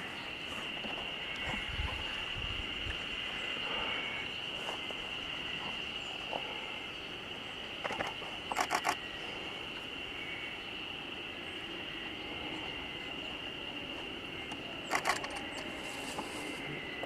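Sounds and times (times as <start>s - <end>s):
bird singing: 3.2s - 15.8s.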